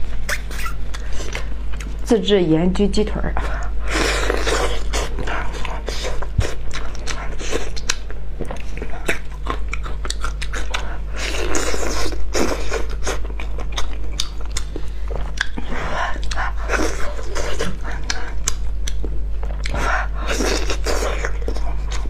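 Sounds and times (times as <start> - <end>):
mouth clicks and smacks: 0.3 - 1.0
wet chewing: 3.4 - 22.0.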